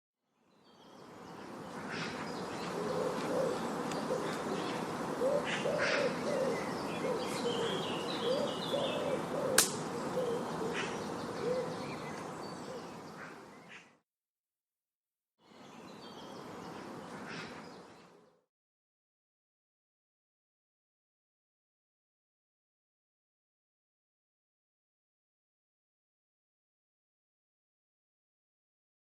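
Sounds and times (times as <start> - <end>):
background hiss: 0.6 - 13.8
birds hooting and cooing: 1.6 - 14.0
sharp click: 9.6 - 9.8.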